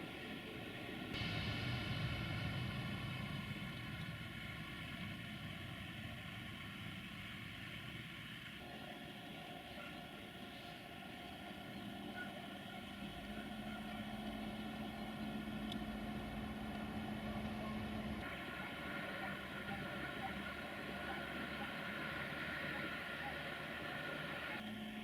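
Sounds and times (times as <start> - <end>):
train machinery humming: 0.0 - 25.0.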